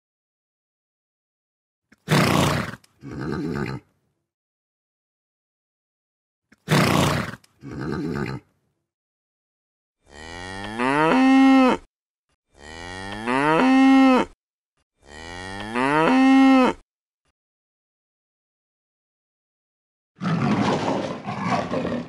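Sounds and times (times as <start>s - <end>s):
horse snort: 1.9s - 3.9s, 6.5s - 8.5s, 20.2s - 22.0s
horse whinny: 2.1s - 3.9s, 6.7s - 8.5s
cow mooing: 10.0s - 11.9s, 12.6s - 14.4s, 15.0s - 16.8s.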